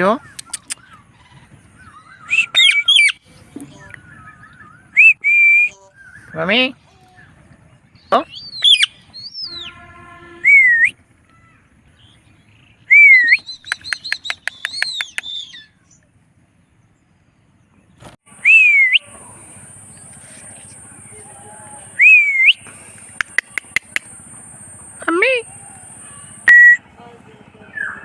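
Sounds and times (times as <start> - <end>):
parrot clicky chatter: 0.2 - 0.9, 13.5 - 15.4, 22.7 - 26.5
parrot whistled calls: 1.8 - 3.2, 8.3 - 9.8, 12.9 - 15.8, 18.4 - 19.1, 21.9 - 22.6, 25.0 - 26.8.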